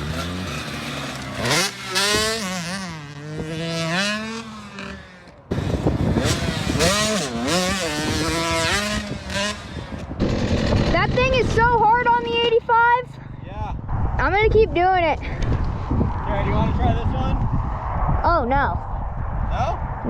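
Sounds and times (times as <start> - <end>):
dirt bike engine revving: 0.0 - 13.4.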